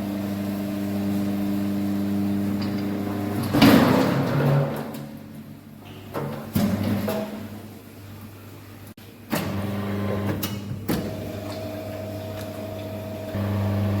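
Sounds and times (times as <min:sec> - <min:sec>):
electric motor hum: 0:11.3 - 0:14.0.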